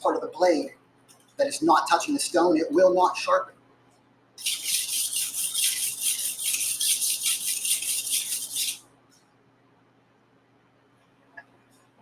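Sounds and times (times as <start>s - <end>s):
knife scraping on sharpening stone: 4.4s - 8.8s.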